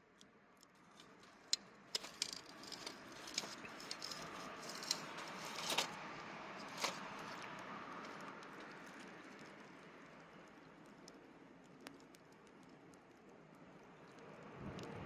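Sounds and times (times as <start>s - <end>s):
campfire crackling and popping: 6.2s - 15.0s.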